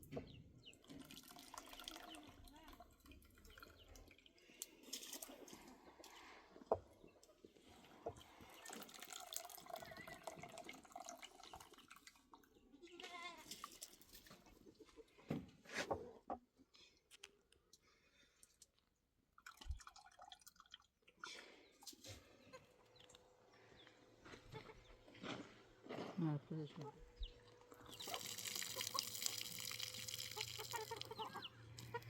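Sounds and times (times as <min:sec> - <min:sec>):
faint clicks and drips: 0:00.6 - 0:07.4, 0:08.0 - 0:12.7, 0:17.1 - 0:22.0, 0:27.6 - 0:32.0.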